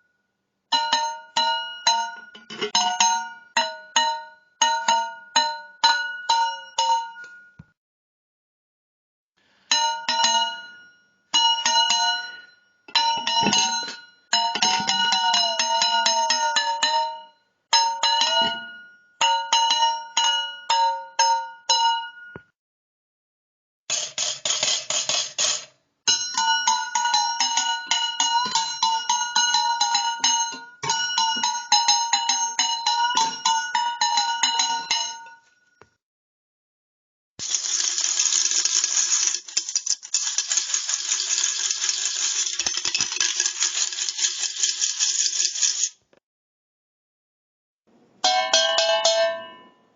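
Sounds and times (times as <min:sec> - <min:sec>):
metal cans struck ringing: 0:13.0 - 0:17.2, 0:23.9 - 0:35.4, 0:48.2 - 0:49.7.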